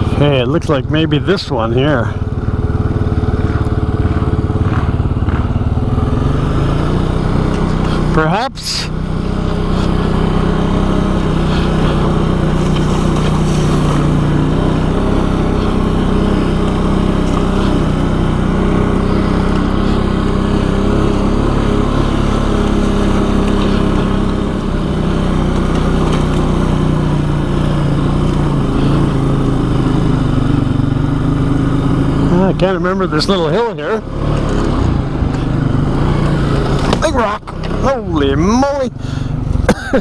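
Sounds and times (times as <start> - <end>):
atv engine running: 0.0 - 40.0.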